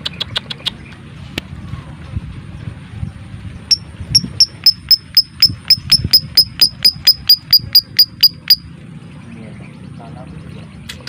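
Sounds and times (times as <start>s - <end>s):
lovebird chirping: 3.7s - 8.7s.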